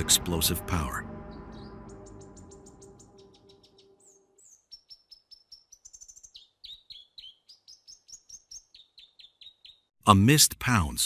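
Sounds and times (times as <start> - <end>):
background music: 0.0 - 4.1
small birds chirping: 0.0 - 10.0.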